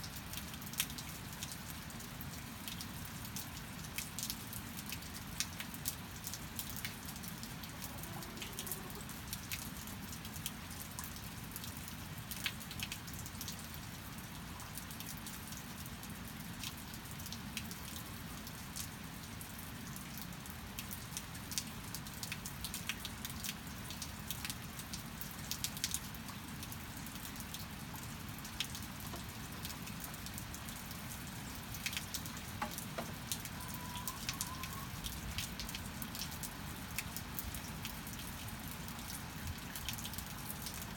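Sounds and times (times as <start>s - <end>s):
steady rain hiss: 0.0s - 40.9s
drops and drips ticking: 20.1s - 40.9s.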